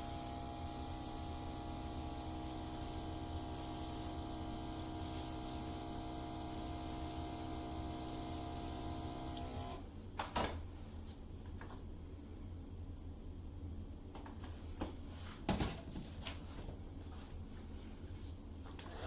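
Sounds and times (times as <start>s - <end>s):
hairdryer running: 0.0s - 9.8s.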